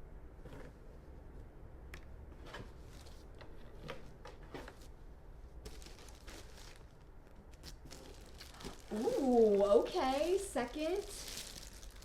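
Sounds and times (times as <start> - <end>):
packaging rustling: 5.6 - 12.0.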